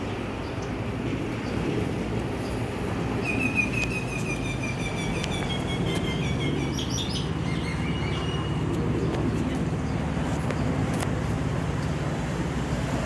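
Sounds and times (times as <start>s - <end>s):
steady low rumble: 0.0s - 13.0s
bird chirping: 3.2s - 10.9s.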